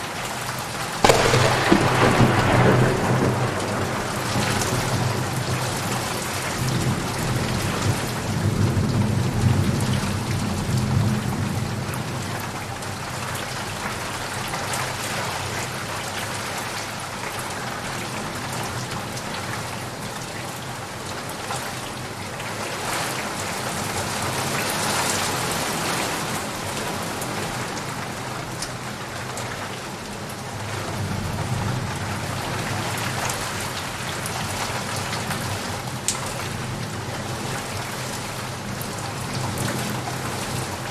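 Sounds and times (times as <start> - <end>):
steady rain: 0.0 - 40.9
low rolling thunder: 1.0 - 11.9.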